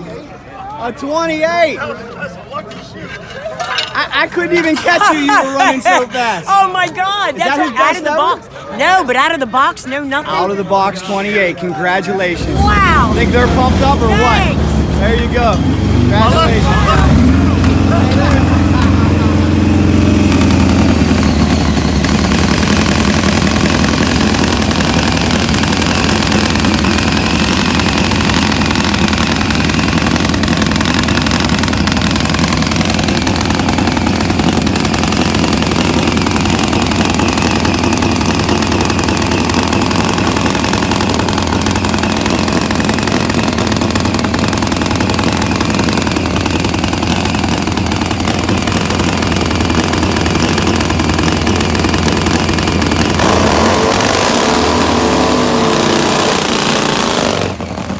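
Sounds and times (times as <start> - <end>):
motorcycle engines idling: 12.2 - 57.9.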